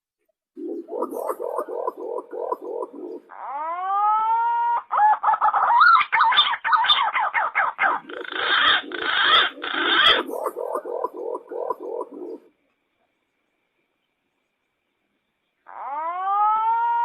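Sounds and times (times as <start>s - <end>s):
rapid low pulsed calls: 0.6s - 3.4s, 7.9s - 12.5s
pigeon whistled calls: 5.4s - 12.5s.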